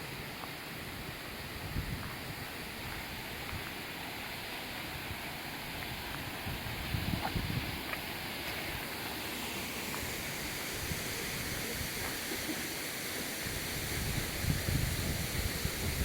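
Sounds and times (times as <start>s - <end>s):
waterfall rushing: 0.0s - 16.0s
wind buffeting microphone: 1.4s - 3.7s, 5.8s - 7.9s, 13.5s - 16.0s.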